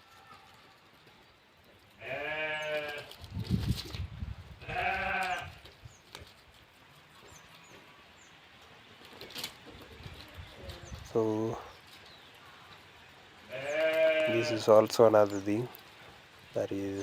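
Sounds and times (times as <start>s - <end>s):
sheep bleating: 2.0s - 3.1s, 4.6s - 5.6s, 13.5s - 14.7s.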